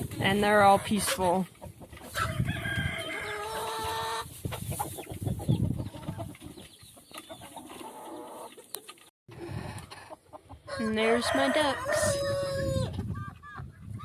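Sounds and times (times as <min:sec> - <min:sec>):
hens clucking: 0:00.1 - 0:14.0
rustling and scratching in hay: 0:00.3 - 0:08.7
rooster crowing: 0:02.2 - 0:03.6, 0:10.7 - 0:12.9.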